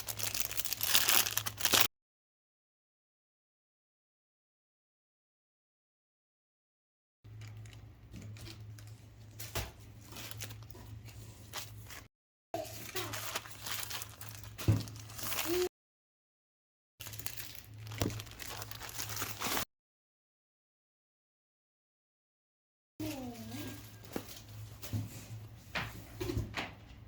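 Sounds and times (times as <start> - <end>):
plastic packaging crinkling: 0.0 - 1.9, 7.3 - 15.7, 17.0 - 19.7.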